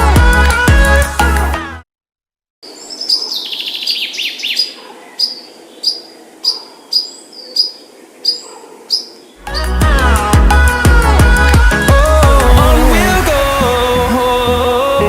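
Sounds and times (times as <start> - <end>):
music: 0.0 - 1.8, 9.4 - 15.0
songbird chirping: 2.6 - 10.0.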